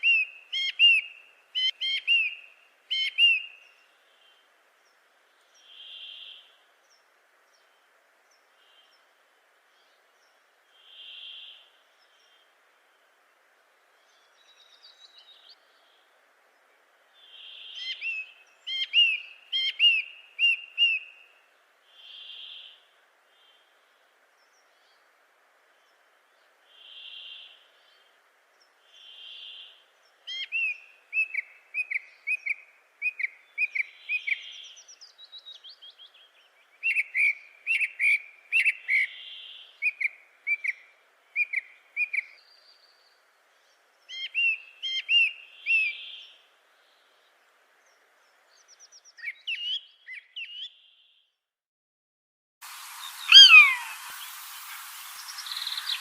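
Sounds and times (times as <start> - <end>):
faint steady hiss: 0.0 - 51.2, 52.6 - 56.0
birds chirping: 52.7 - 56.0
soft whistled bird notes: 53.0 - 56.0.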